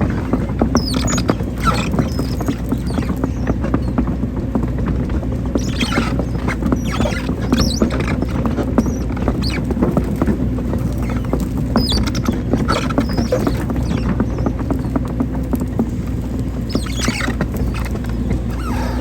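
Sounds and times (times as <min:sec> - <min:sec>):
bucket knocking and scraping soil: 0:00.0 - 0:19.0
excavator diesel engine running: 0:00.0 - 0:19.0
short high squeaks: 0:16.7 - 0:19.0.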